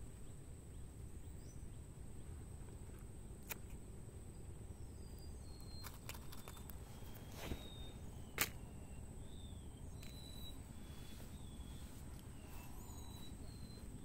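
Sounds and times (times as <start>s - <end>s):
steady low rumble: 0.0s - 14.0s
thin high whine: 6.8s - 14.0s.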